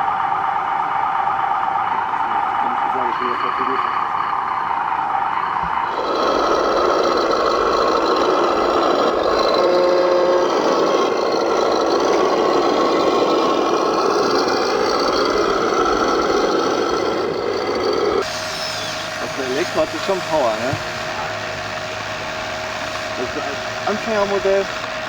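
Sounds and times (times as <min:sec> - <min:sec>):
rc model grinding and scraping: 0:05.6 - 0:25.0.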